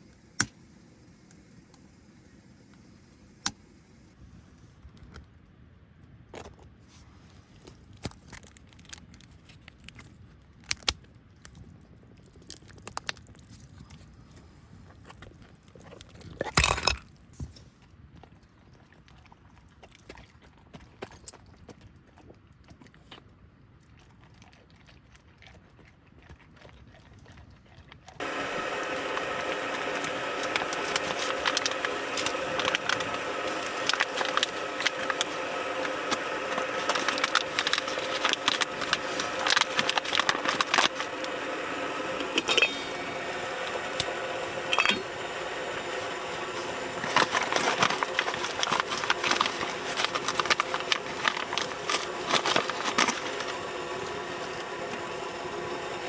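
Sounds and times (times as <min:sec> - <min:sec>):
wood fire crackling in stove: 0:28.2 - 0:56.0.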